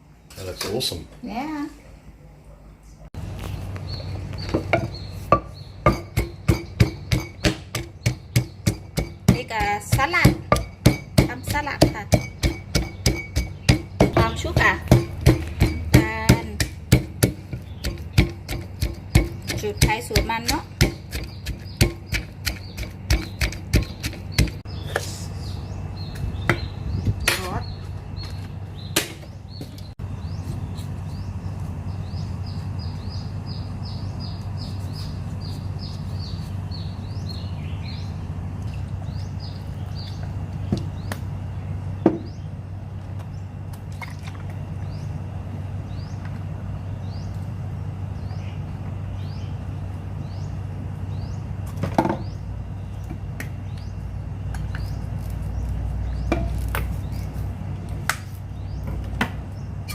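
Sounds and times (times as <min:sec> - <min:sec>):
steady low hum: 0:00.0 - 0:59.9
bird chirping: 0:02.9 - 0:42.6.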